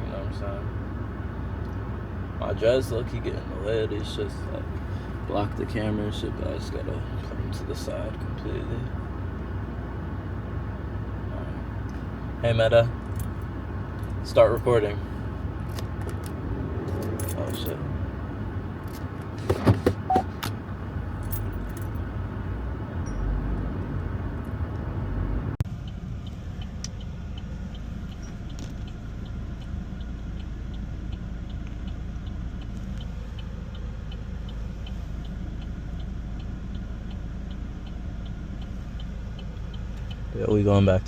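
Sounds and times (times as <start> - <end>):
car cabin rumble while driving: 0.0 - 41.0
turn signal ticking: 0.0 - 41.0
sharp clicks and rattles: 15.6 - 17.8.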